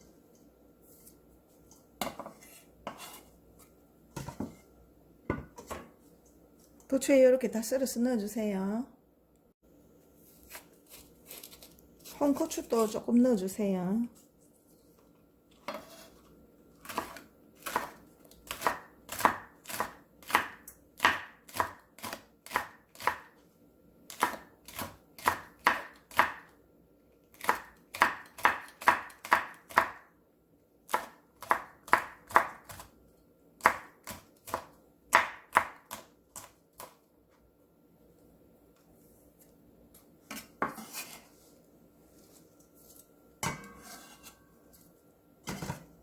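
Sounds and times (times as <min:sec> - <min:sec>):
knife chopping on cutting board: 0:16.8 - 0:23.3, 0:24.1 - 0:26.5, 0:27.4 - 0:30.0, 0:30.9 - 0:32.9, 0:33.6 - 0:37.0.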